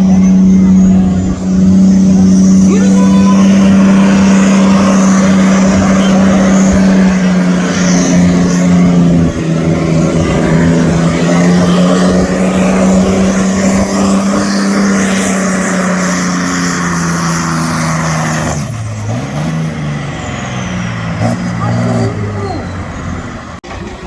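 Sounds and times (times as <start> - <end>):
tractor engine at full throttle: 0.0 - 24.0.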